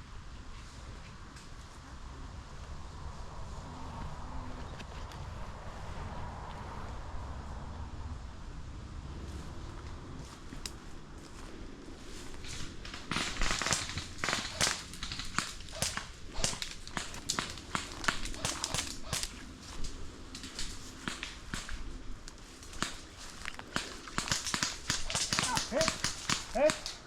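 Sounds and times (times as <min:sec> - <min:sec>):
airsoft gunfire cracks and pops: 0:12.8 - 0:19.4, 0:20.3 - 0:27.0.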